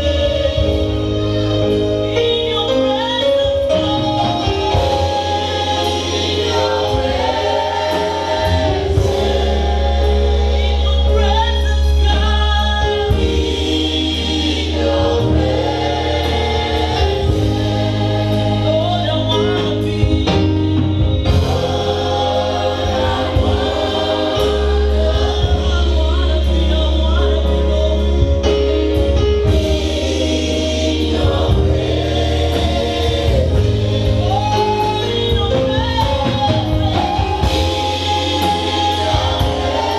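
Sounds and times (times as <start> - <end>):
band with bass line: 0.0 - 39.9
choir singing in harmony: 0.0 - 39.9.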